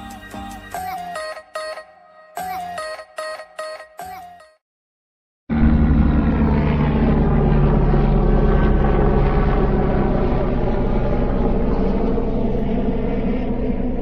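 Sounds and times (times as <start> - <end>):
aircraft engines roaring: 5.5 - 14.0.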